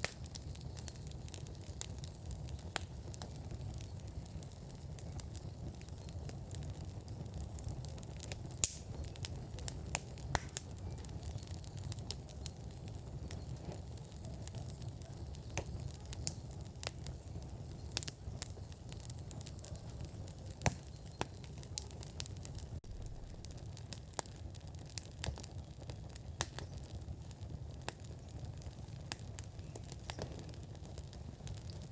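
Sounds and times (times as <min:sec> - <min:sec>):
fire low rumble: 0:00.0 - 0:31.9
wood fire crackling and popping: 0:00.0 - 0:31.9.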